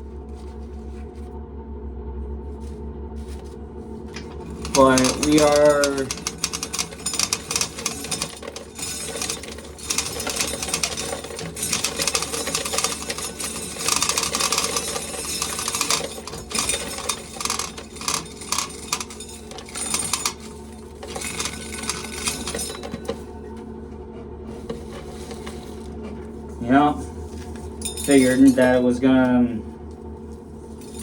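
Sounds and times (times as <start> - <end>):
electric fan humming: 0.0 - 31.0
corn kernels clattering in sheller: 4.1 - 23.4, 24.5 - 26.0.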